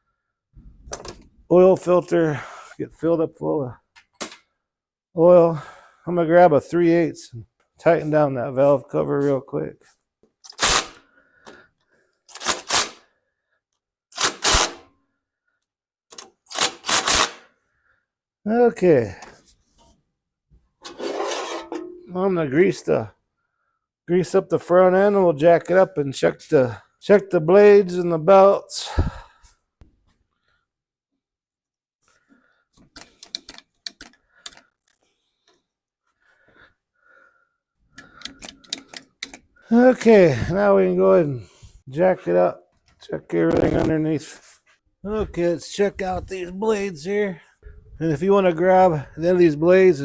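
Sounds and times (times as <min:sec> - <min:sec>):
grease gun metal clicks: 0:32.9 - 0:35.0, 0:38.0 - 0:39.5.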